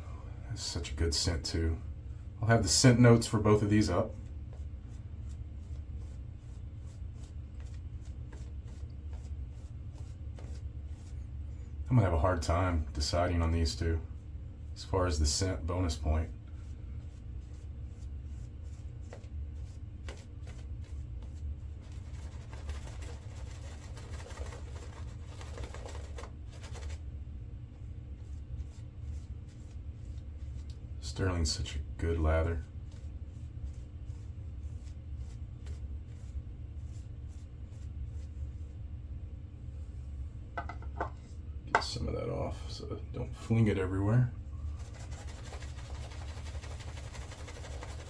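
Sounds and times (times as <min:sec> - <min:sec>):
steady low hum: 0:00.0 - 0:48.0
shaving brush swishing: 0:44.7 - 0:48.0.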